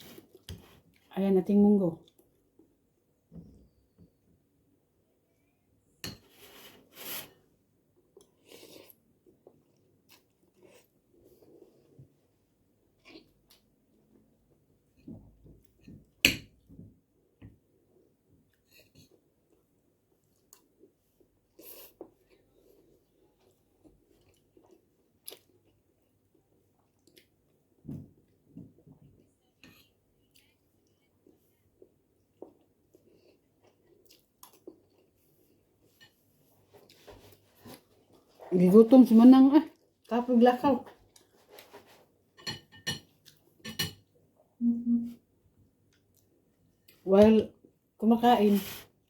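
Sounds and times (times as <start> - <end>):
person chewing food: 8.0 - 11.9, 12.8 - 13.8, 17.8 - 38.3.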